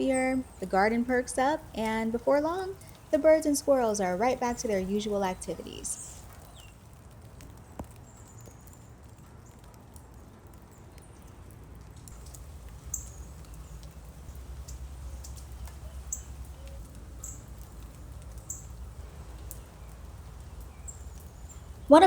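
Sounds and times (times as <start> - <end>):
low outdoor rumble: 0.0 - 8.1, 11.3 - 22.0
faint clicks: 6.2 - 21.9
small bird chirping: 12.2 - 21.9.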